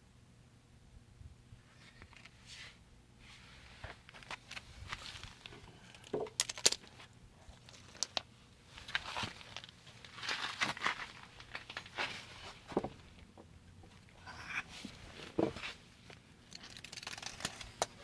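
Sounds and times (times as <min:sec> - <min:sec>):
rustling and crinkling: 0:01.7 - 0:18.0.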